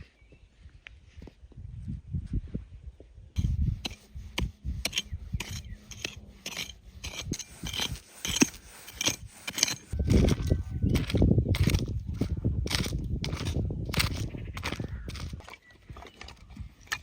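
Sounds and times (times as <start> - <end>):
utensil clicks taps and scrapes: 3.4 - 10.0.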